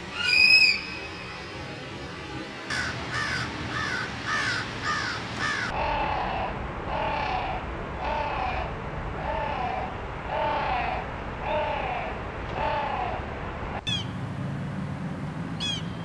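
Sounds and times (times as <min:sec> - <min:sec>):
bird calling: 0:00.0 - 0:01.1, 0:02.7 - 0:05.8, 0:13.8 - 0:14.2, 0:15.6 - 0:16.0.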